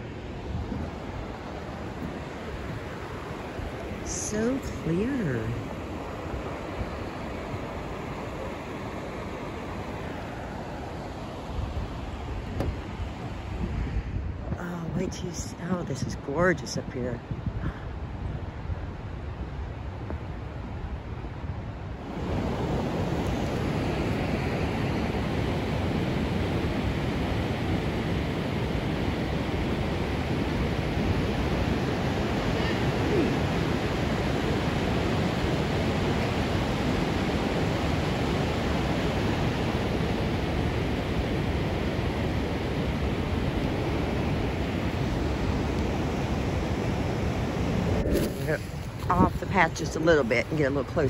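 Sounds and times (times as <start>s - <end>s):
rushing waterfall roar: 0.0s - 13.9s, 22.0s - 51.0s
waterfall rushing: 30.2s - 40.0s.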